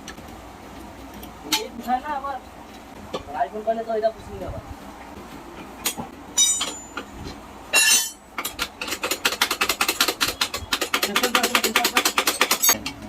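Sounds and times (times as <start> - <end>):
metal tools clanking: 5.8 - 12.9
fast metallic clicks: 8.4 - 12.9.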